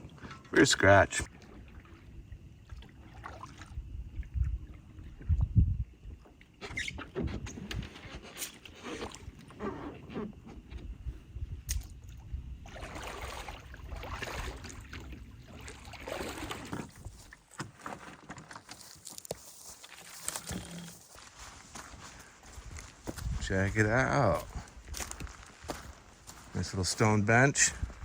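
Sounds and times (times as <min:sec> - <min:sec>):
water splashing around hull: 0:00.0 - 0:09.6, 0:11.6 - 0:23.3
paddle strokes: 0:12.7 - 0:23.2.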